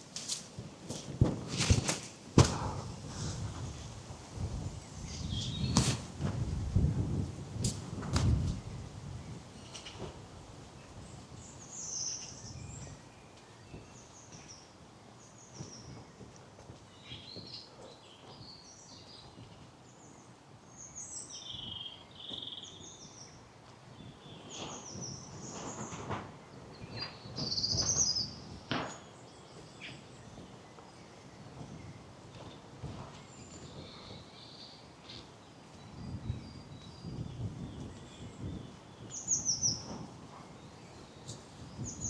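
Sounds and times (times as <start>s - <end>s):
footsteps on path: 0.1s - 3.8s
songbirds singing and chirping: 2.6s - 7.6s, 8.3s - 42.0s.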